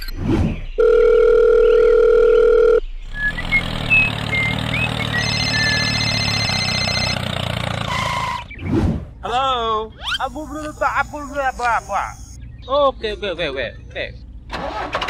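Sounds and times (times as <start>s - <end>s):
telephone dial tone: 0.8s - 2.8s, 5.3s - 7.2s
small tractor engine running: 3.1s - 8.5s.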